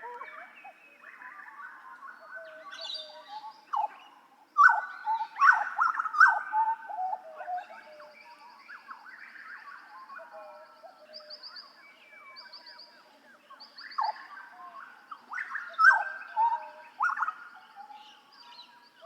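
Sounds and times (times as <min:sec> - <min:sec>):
bird singing whistled notes: 0:00.0 - 0:19.0.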